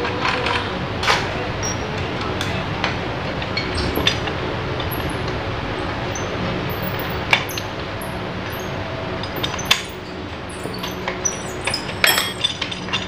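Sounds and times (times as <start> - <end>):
steady background hum: 0.0 - 13.0
metal tools clinking: 8.5 - 13.0.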